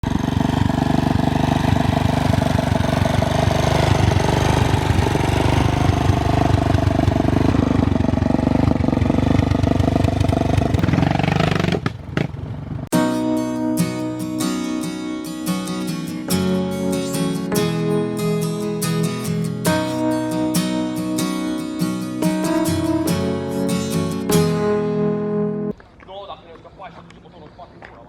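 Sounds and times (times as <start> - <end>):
off-road vehicle engine running: 0.0 - 12.9.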